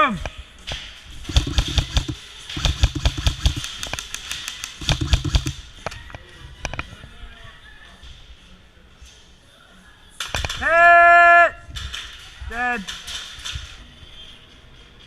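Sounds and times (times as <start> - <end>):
airsoft guns firing: 1.2 - 5.8.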